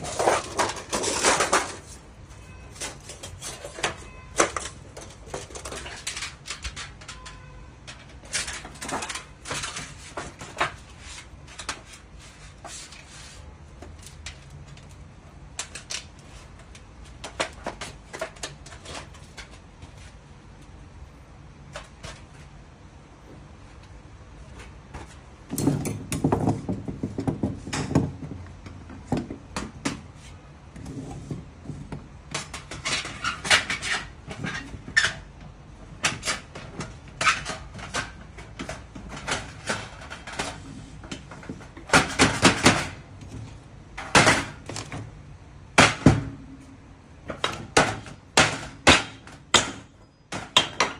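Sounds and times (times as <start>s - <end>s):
metal parts clanking and scraping: 0.0s - 13.1s, 32.3s - 35.4s, 36.0s - 43.0s.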